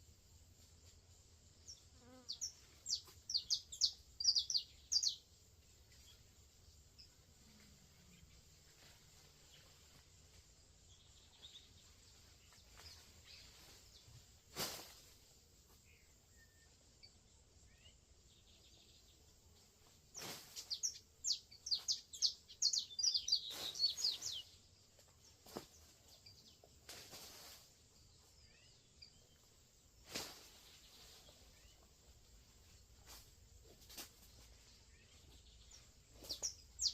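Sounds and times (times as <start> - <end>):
songbird chirping: 0.0 - 36.9.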